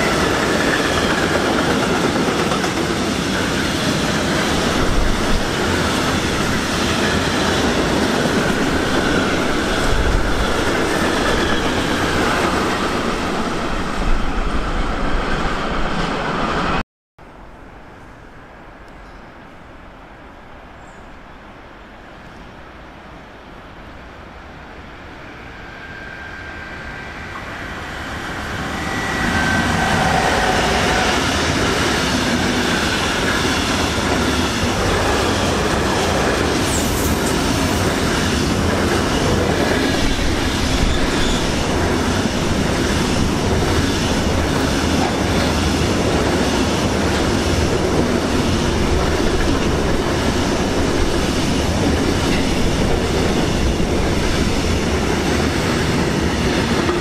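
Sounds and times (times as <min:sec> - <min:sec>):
train passing: 0:00.0 - 0:57.0.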